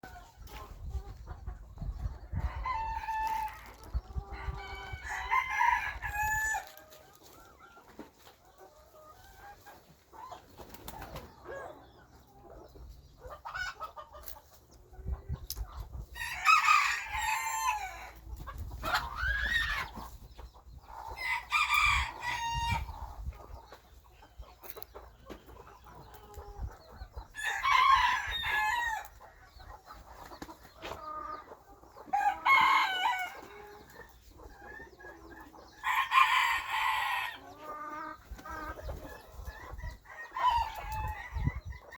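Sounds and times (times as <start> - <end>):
roosters crowing: 2.3 - 7.2, 16.1 - 20.0, 21.0 - 23.0, 27.3 - 29.2, 32.0 - 33.9, 35.6 - 38.8, 40.0 - 41.9.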